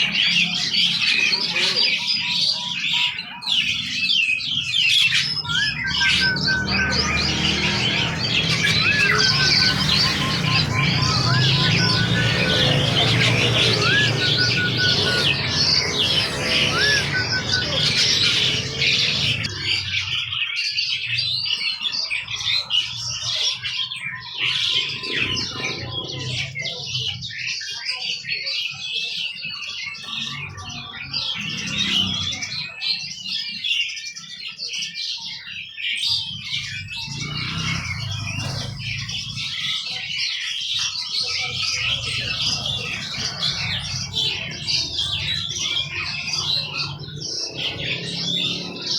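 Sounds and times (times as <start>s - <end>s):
bird squawks: 0.0s - 20.2s
songbirds chirping and twittering: 0.0s - 48.9s.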